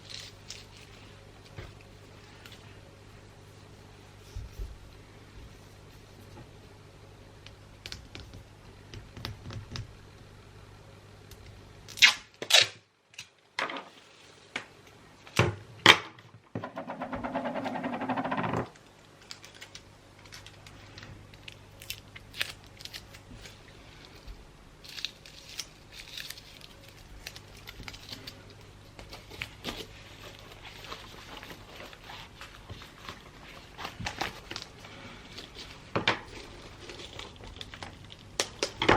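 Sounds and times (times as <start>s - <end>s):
paper rustling: 22.4s - 38.2s.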